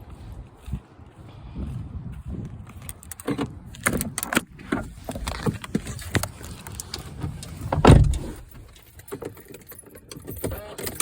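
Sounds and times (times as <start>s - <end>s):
car keys jangling: 2.8s - 11.0s
heavy thump: 7.7s - 8.6s.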